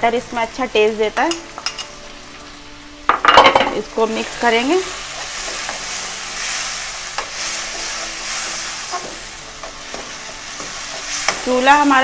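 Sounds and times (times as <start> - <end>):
vegetables sizzling in hot oil: 0.0 - 12.0
spatula scraping a wok: 4.2 - 12.0.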